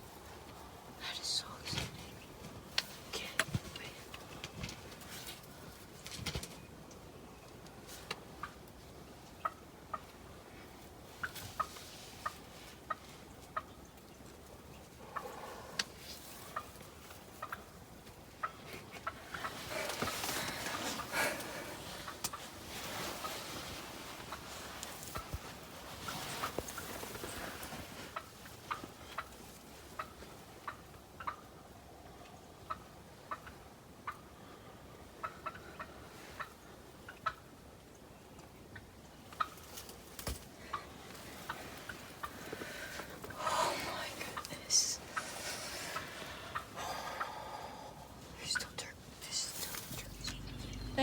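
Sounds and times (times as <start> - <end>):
turkey clucking: 9.4 - 10.1, 16.4 - 17.8, 28.1 - 29.4, 30.0 - 31.6, 32.6 - 34.3, 35.2 - 37.6.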